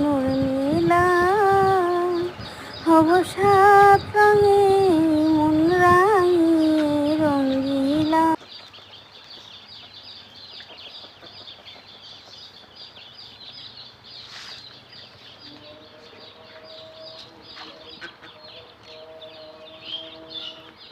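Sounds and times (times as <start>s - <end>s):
ducklings peeping: 0.0s - 20.9s.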